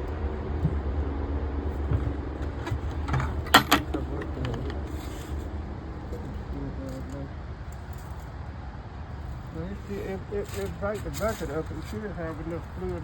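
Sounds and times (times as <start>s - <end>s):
tractor engine running: 0.0s - 7.2s
sharp metal clanks: 2.0s - 4.8s.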